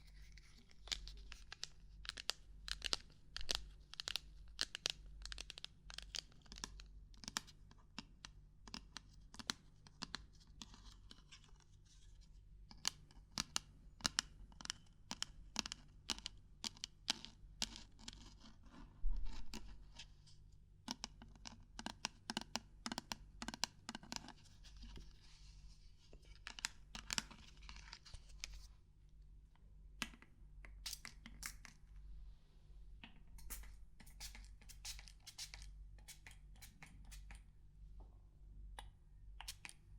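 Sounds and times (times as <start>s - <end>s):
fingers tapping and scratching objects: 20.8s - 25.0s.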